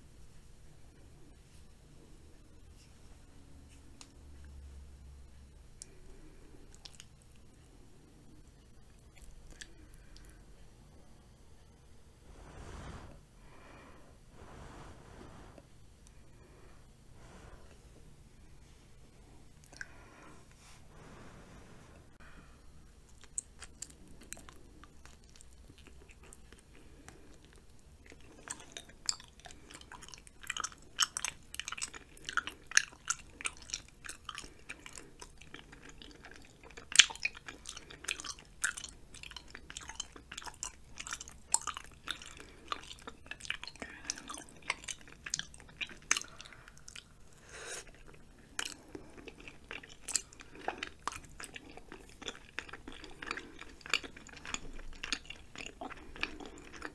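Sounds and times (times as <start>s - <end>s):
close chewing food: 5.8s - 10.4s, 23.0s - 56.9s.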